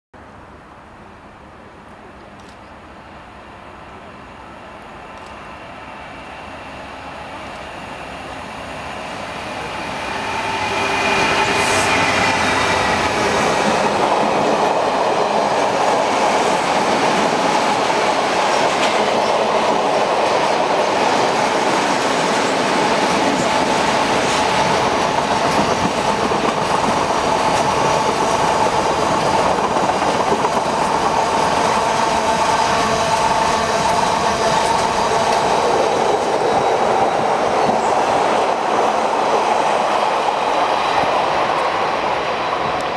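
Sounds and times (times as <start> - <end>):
diesel locomotive engine passing: 3.0 - 42.9
wheel-on-rail noise: 8.9 - 42.9
wheels clickety-clack: 23.1 - 31.1.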